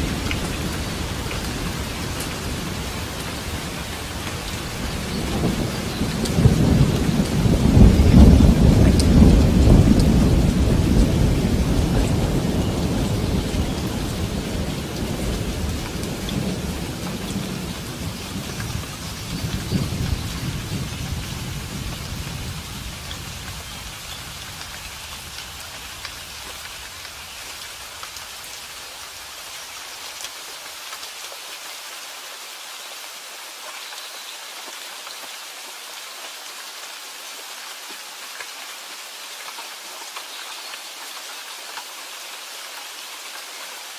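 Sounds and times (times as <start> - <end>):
steady rain falling: 0.0 - 43.9
thunder rolling: 5.2 - 23.5.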